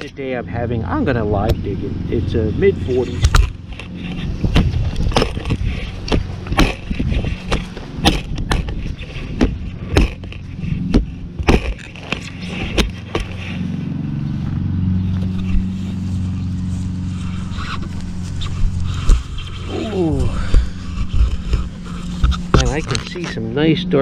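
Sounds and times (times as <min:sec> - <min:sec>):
steady low hum: 0:00.0 - 0:24.0
shovel digging into soil: 0:02.8 - 0:13.6.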